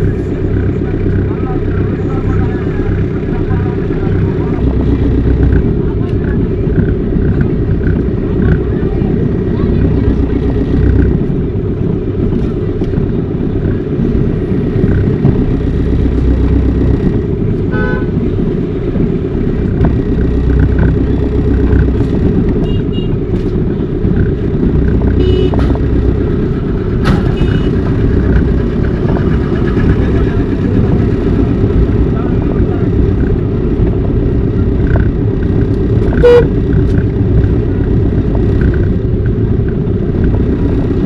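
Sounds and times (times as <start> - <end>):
car driving rumble: 0.0 - 41.0
car horn toots: 17.7 - 18.2, 22.6 - 23.2, 25.2 - 25.7, 27.2 - 27.8, 36.1 - 36.6.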